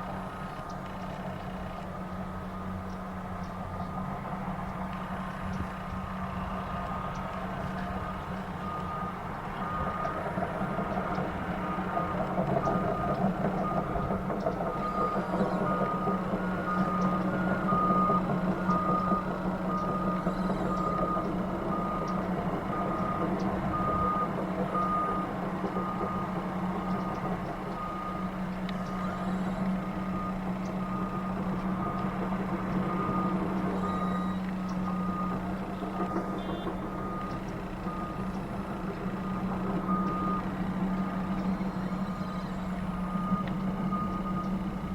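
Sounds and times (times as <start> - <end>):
low engine drone: 0.0 - 44.9
reversing alarm beeping: 1.7 - 4.2, 5.2 - 44.9
higher-pitched reversing alarm: 6.4 - 44.9.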